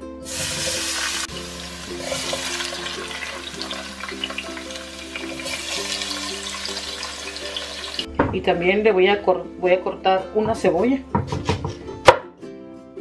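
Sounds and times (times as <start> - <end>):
plucked background music: 0.0 - 13.0
tomatoes sizzling in hot oil: 0.2 - 8.1.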